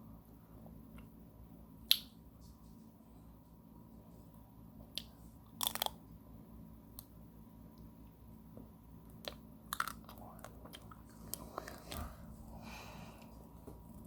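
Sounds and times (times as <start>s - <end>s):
crunching bite of ice cream: 5.0s - 6.0s, 9.2s - 12.1s.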